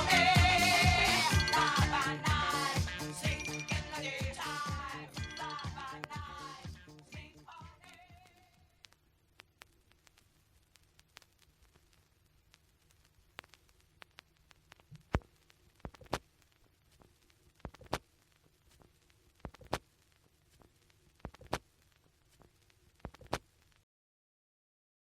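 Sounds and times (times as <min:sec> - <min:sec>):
vinyl record surface noise: 0:00.0 - 0:23.9
sharp vinyl clicks: 0:05.9 - 0:06.2, 0:07.6 - 0:23.8.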